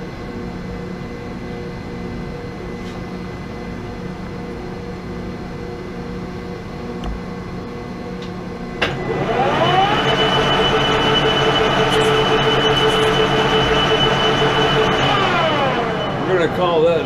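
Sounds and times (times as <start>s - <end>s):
lathe drive whine: 8.8s - 17.0s
metal lathe humming: 9.1s - 17.0s.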